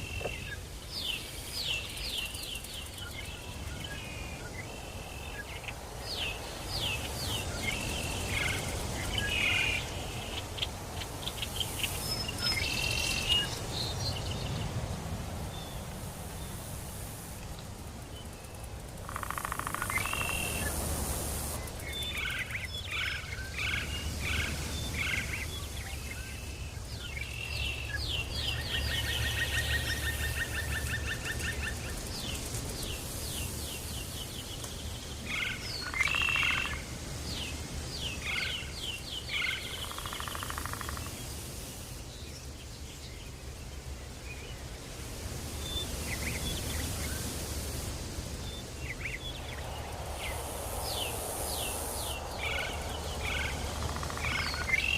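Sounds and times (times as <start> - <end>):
high hiss: 0.0 - 43.2, 43.8 - 54.9.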